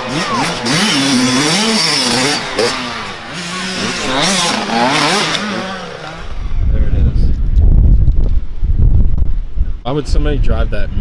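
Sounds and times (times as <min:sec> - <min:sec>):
dirt bike engines revving: 0:00.0 - 0:07.6
wind buffeting microphone: 0:06.1 - 0:11.0.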